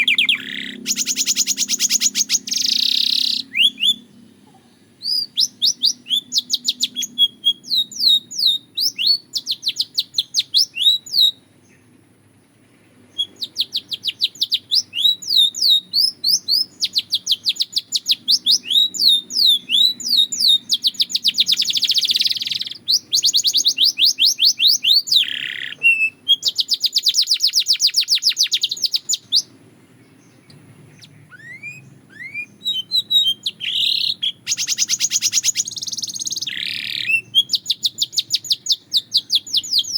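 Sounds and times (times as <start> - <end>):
canary singing in trills: 0.0 - 39.9.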